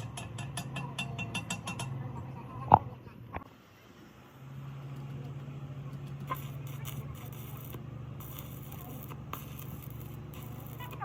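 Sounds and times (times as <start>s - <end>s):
machine humming: 6.2s - 11.0s.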